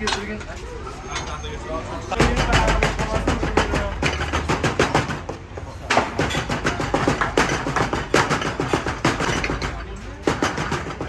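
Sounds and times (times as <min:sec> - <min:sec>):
rapid clatter of sharp knocks: 0:02.2 - 0:11.0.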